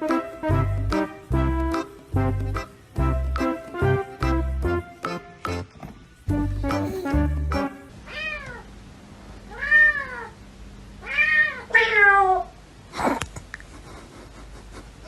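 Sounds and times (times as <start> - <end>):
cat meowing: 8.1 - 8.7, 9.5 - 10.4, 11.0 - 12.6.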